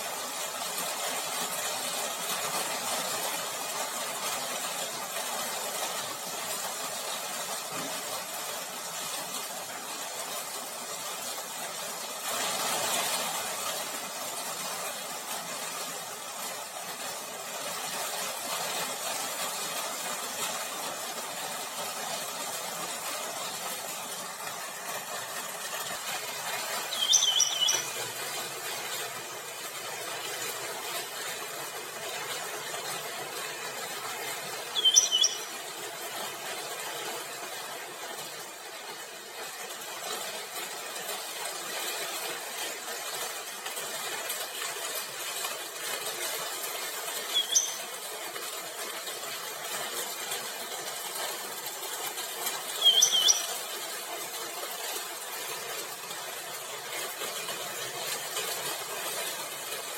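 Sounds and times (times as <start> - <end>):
bird chirps: 26.8 - 28.0, 34.8 - 35.6, 47.3 - 48.0, 52.8 - 53.6.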